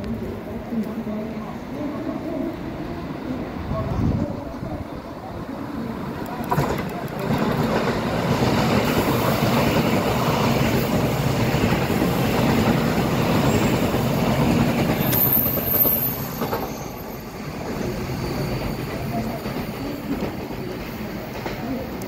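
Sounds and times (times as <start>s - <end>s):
train wheels rumbling on rails: 0.0s - 22.0s
high wheel squeal: 13.3s - 14.1s, 15.0s - 20.1s.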